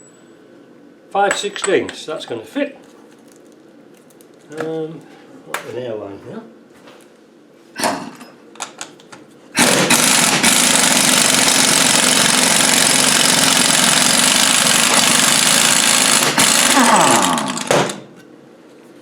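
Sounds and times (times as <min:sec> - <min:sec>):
air impact wrench hammering: 0:09.6 - 0:18.1.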